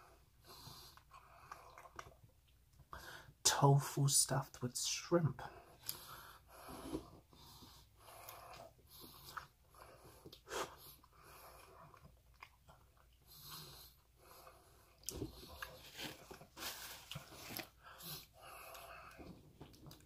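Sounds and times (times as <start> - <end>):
person chewing softly: 0.0 - 3.0, 5.6 - 20.0
breathing: 2.9 - 3.4, 5.5 - 12.0, 17.7 - 19.4.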